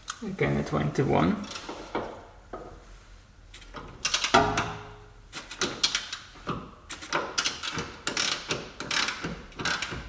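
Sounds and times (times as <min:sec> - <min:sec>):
wrench clicking and knocking on metal: 0:03.6 - 0:10.0.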